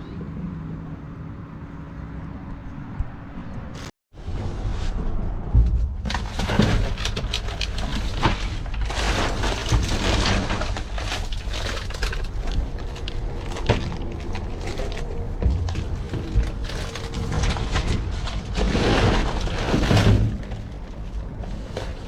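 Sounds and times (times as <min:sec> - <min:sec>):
objects knocking together: 0:05.7 - 0:22.0
trash bags rustling and crackling: 0:06.1 - 0:22.0.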